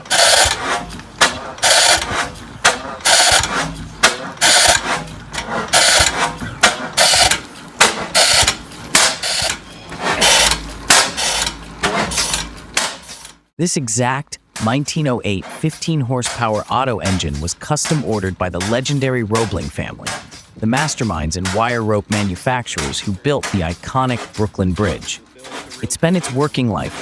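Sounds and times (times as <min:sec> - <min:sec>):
antique engine running slowly: 0:00.3 - 0:10.9.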